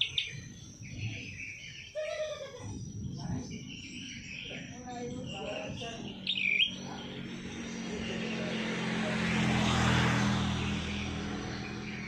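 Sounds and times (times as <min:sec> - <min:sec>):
bird whistled chirp: 0:00.0 - 0:02.3, 0:05.3 - 0:07.0.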